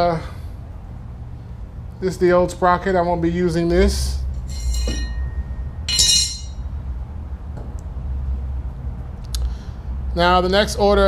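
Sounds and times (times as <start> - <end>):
steady low hum: 0.0 - 11.0
metal tools clinking: 4.4 - 6.6.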